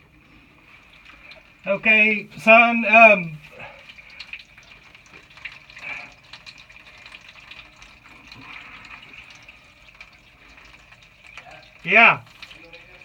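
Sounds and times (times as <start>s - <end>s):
water trickling through drain pipes: 0.0s - 13.0s
gurgling ticks: 3.4s - 13.0s.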